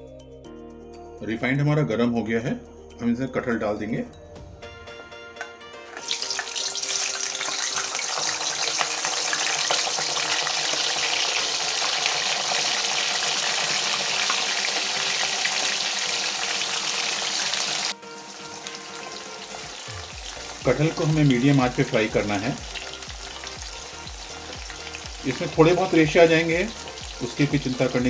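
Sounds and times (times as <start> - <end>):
food sizzling in hot oil: 5.9 - 28.0.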